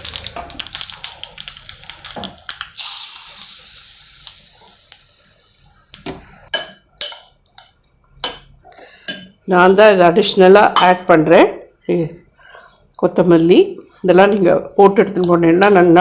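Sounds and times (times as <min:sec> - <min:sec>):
mustard seeds popping in oil: 0:00.0 - 0:03.6
sizzling hiss: 0:00.0 - 0:06.6.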